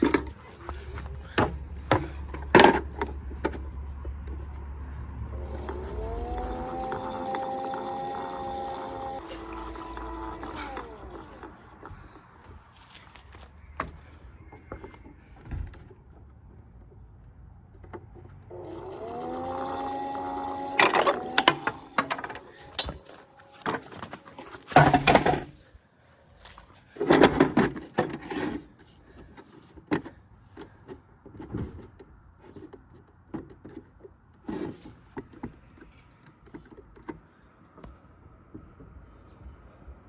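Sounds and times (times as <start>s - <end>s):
small electric motor whining: 5.2s - 12.2s, 18.5s - 25.5s
plastic knocks and clatters: 20.8s - 25.6s.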